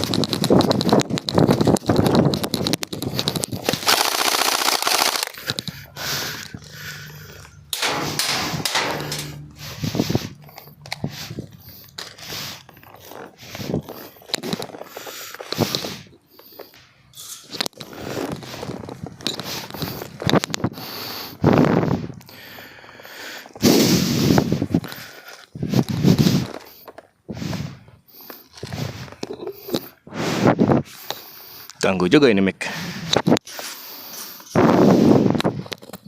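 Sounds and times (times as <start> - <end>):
sharp clicks and pops: 0.0 - 21.1, 35.3 - 36.0
clothing rustling against microphone: 6.9 - 20.8
microphone handling noise: 7.8 - 11.6.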